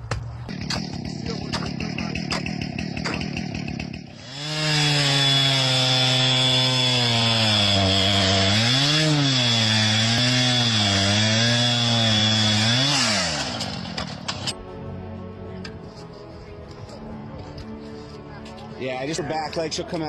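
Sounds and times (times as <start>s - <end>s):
chainsaw running: 0.5s - 14.6s.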